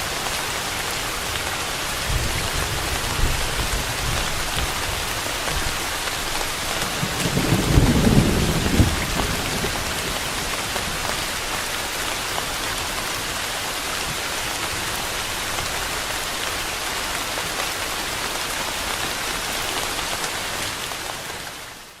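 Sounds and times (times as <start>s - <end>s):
steady rain: 0.0s - 22.0s
low thunder rumble: 6.8s - 11.0s.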